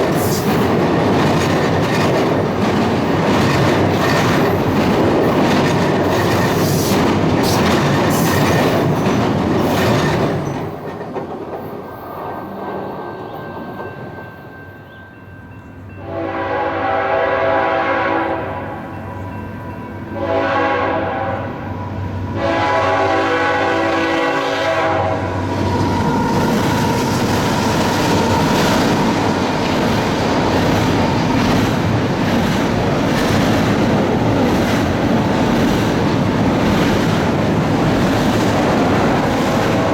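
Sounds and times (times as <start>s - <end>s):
train rumble and wheel clatter: 0.0s - 39.9s
locomotive horn blasts: 16.0s - 19.0s, 20.1s - 27.2s.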